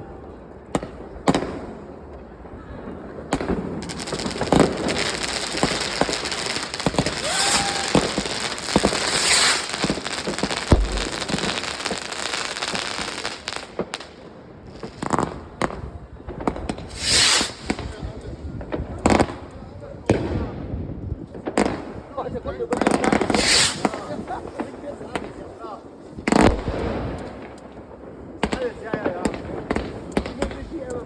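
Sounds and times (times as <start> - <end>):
fireworks and firecrackers banging: 0.0 - 31.0
firework whistle: 4.1 - 12.8, 16.9 - 17.9, 23.3 - 24.0.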